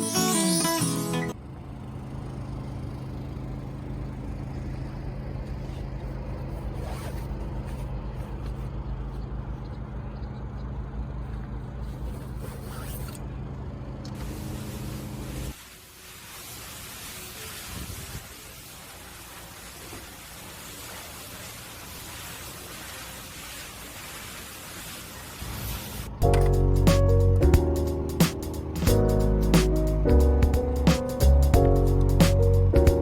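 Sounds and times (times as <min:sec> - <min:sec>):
car engine hum: 0:01.3 - 0:15.5, 0:26.1 - 0:33.0
steady hiss: 0:14.3 - 0:27.2.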